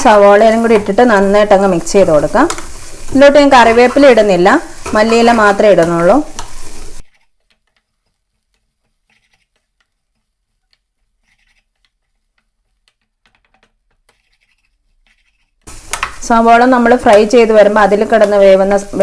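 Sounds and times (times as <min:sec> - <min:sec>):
food frying and stirred in pan: 0:00.0 - 0:19.0.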